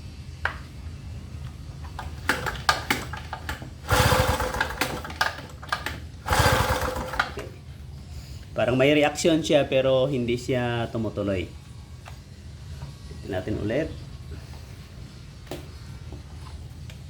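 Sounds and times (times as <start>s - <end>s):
generator engine sputtering: 0.4s - 7.6s.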